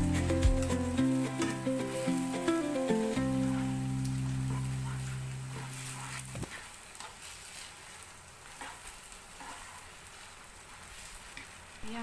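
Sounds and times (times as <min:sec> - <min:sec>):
background music: 0:00.0 - 0:05.6
noodles sizzling in a pan: 0:00.0 - 0:12.0.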